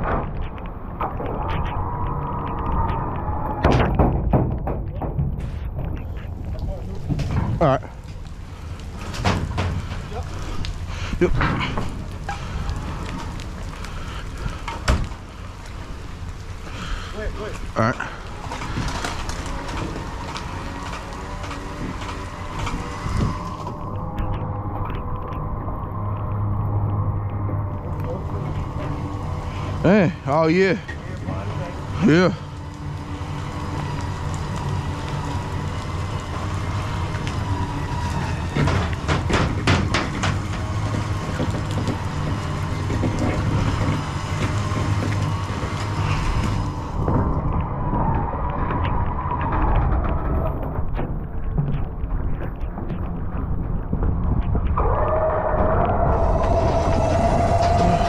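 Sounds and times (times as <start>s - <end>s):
high whine: 0.0s - 4.2s, 5.4s - 58.0s
knocks and rattles: 3.6s - 8.3s, 8.9s - 10.4s, 33.3s - 58.0s.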